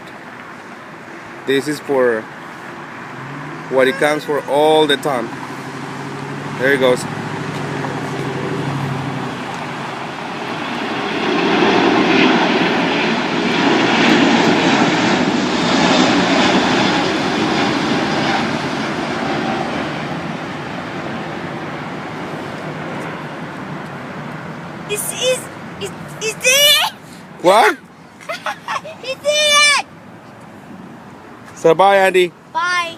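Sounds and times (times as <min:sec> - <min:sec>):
jet airliner taking off: 0:02.7 - 0:26.0.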